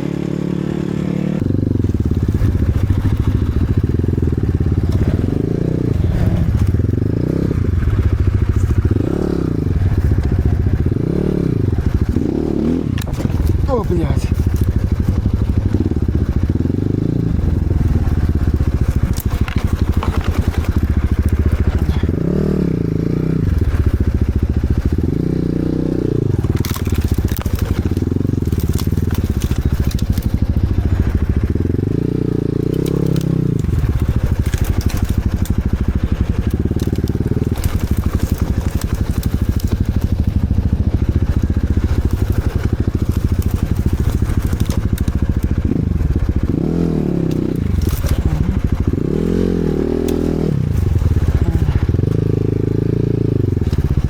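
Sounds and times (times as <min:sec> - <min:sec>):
motorcycle engine revving: 0:00.0 - 0:54.0
crackling and clattering: 0:11.8 - 0:22.4, 0:26.2 - 0:31.7, 0:32.5 - 0:49.4.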